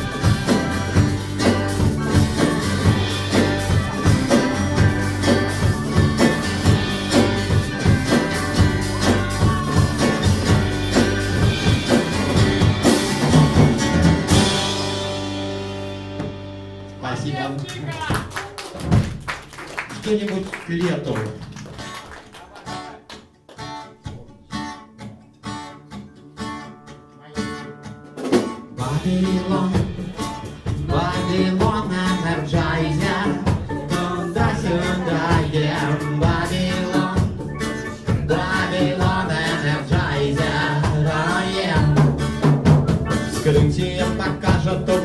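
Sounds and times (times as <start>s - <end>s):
steady drum beat: 0.0s - 16.9s, 17.9s - 20.0s, 28.2s - 45.0s
guitar strumming chords: 0.0s - 17.4s, 24.6s - 45.0s
live band playing: 0.0s - 45.0s.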